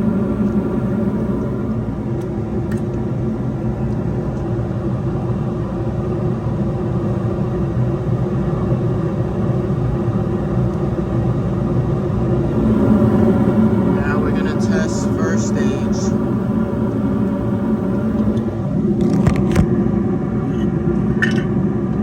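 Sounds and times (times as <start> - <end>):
machine rumbling: 0.0 - 3.0, 11.5 - 19.7
faint hum: 0.0 - 3.9, 10.8 - 19.7.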